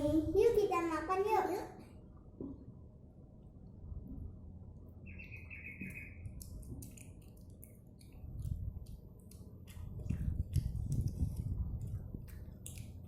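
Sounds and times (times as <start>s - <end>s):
child chewing wetly: 5.8s - 13.0s.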